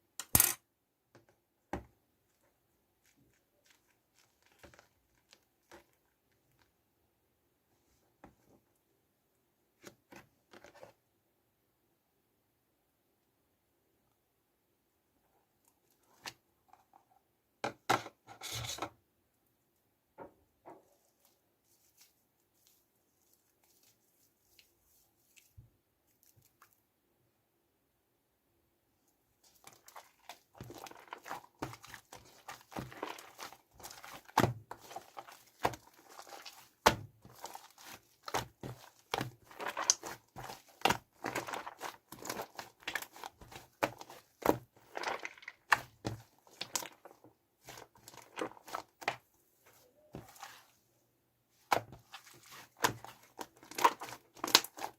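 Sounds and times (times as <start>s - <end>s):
shaving foam squished by hand: 29.4s - 50.8s, 51.6s - 54.9s.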